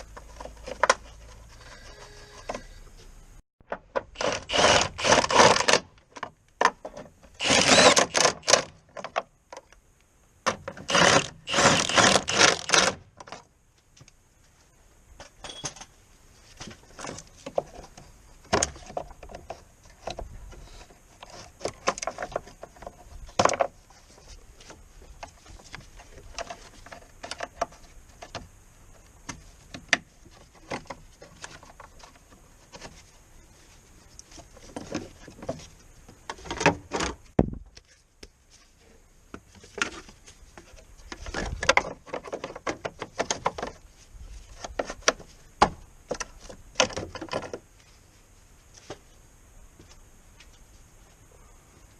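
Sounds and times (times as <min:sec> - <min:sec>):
hand tool scraping strokes: 0:07.4 - 0:08.6, 0:10.8 - 0:13.0.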